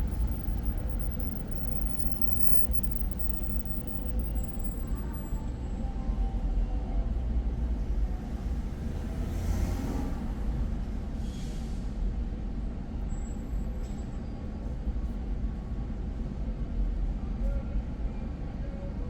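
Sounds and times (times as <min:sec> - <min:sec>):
car driving in city traffic: 0:00.0 - 0:05.7, 0:08.2 - 0:12.0.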